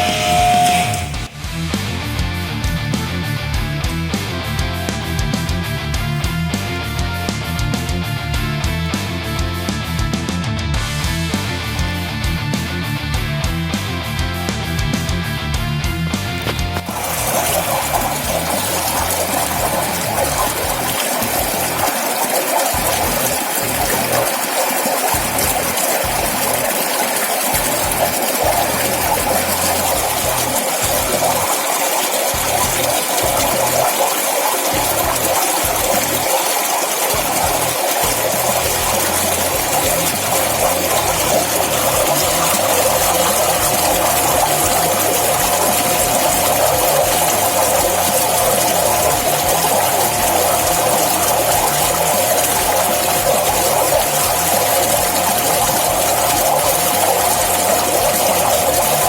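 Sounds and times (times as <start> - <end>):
water flowing: 0.0 - 1.6, 16.2 - 59.0
pump machine running: 0.0 - 12.4, 15.9 - 59.0
rock music: 0.0 - 22.1, 22.8 - 24.4, 25.0 - 31.7, 32.3 - 34.0, 34.7 - 59.0.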